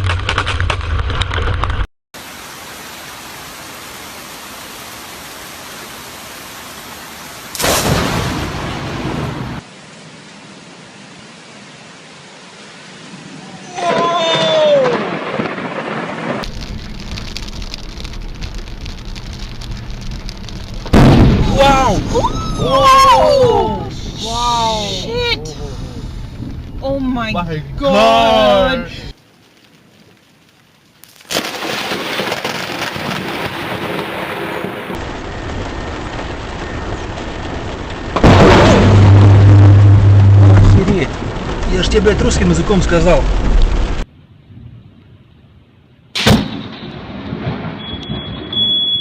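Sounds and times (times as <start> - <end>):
heavy rain hissing: 2.2 - 44.1
lightning crack: 4.6 - 9.7, 13.8 - 27.3, 31.0 - 44.1, 46.2 - 48.9
thunder burst: 7.5 - 9.6, 14.3 - 24.3, 31.3 - 44.8, 46.2 - 48.7
low rumble of thunder: 14.8 - 23.7, 46.5 - 48.6
loud sound with low hum: 35.0 - 41.5.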